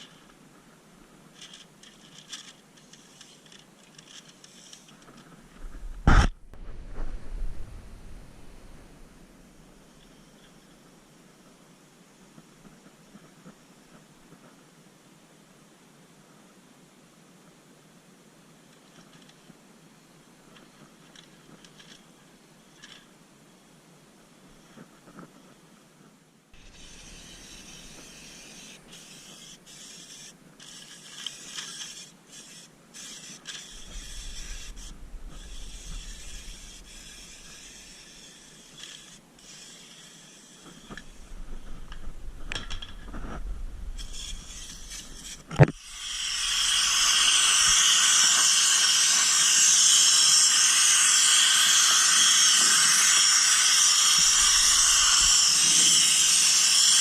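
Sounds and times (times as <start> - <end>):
clicks and scraping handling noises: 0.0 - 7.2, 18.7 - 19.6, 20.5 - 23.1, 24.6 - 46.7
spray gun hissing: 33.6 - 41.4, 43.9 - 57.0.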